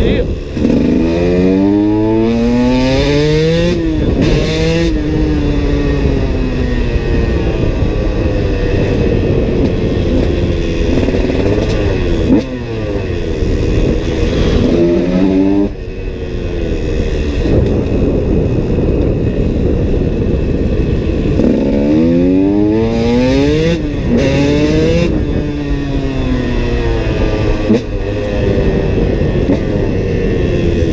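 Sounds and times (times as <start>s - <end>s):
motocross engine revving: 0.0s - 7.6s, 10.8s - 15.7s, 21.3s - 29.7s.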